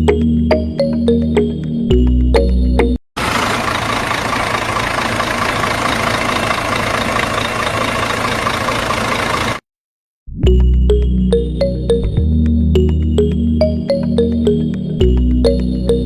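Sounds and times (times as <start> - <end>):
background music: 0.0 - 3.0, 10.4 - 16.0
small engine running: 3.2 - 9.6.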